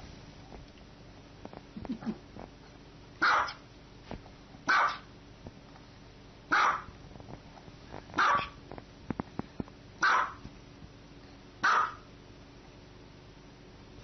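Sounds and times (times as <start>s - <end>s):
small dog barking: 3.2s - 3.6s, 4.7s - 5.1s, 6.5s - 6.9s, 8.2s - 8.6s, 10.0s - 10.4s, 11.6s - 12.1s.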